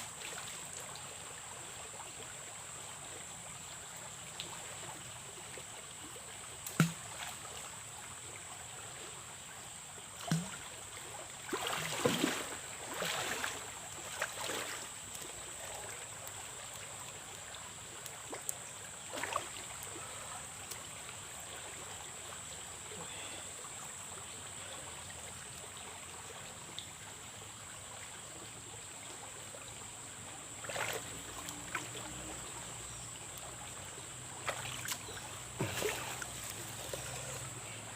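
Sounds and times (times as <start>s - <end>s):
river water flowing: 0.0s - 37.9s
splashing: 6.6s - 7.5s, 10.2s - 10.7s, 11.4s - 16.4s, 19.1s - 20.8s, 30.6s - 32.1s, 34.4s - 37.5s.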